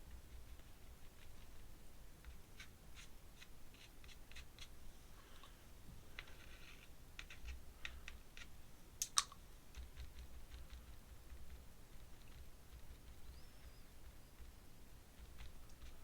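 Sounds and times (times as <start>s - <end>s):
scratchy rustle: 6.1s - 7.6s.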